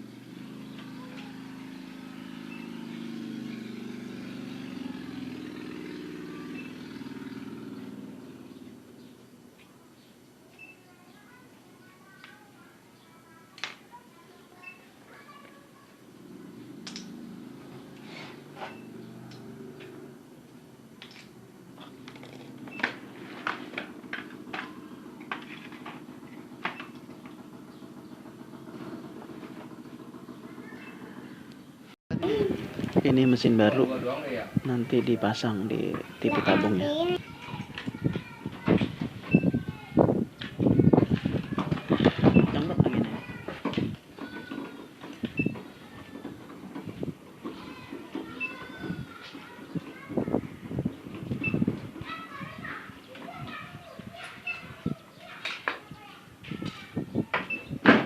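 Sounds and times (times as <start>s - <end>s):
vehicle engine passing by: 0.0s - 9.4s, 16.0s - 37.2s
clicks and knocks of tools handled: 16.8s - 17.2s.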